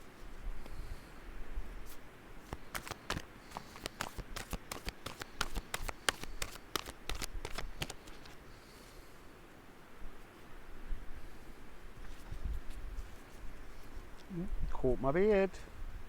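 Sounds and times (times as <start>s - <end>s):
cards being shuffled: 1.9s - 8.4s.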